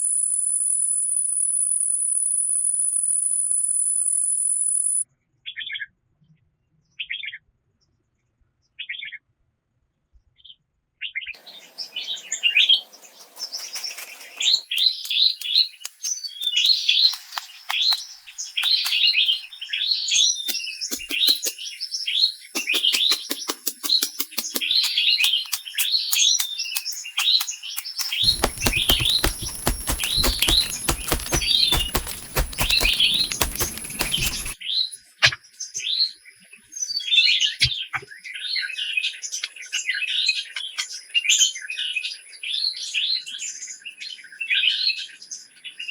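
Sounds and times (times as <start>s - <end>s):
small songbirds chirping: 11.4s - 34.6s
sharp clicks and crackling: 13.2s - 19.7s, 20.5s - 21.6s, 22.6s - 34.6s.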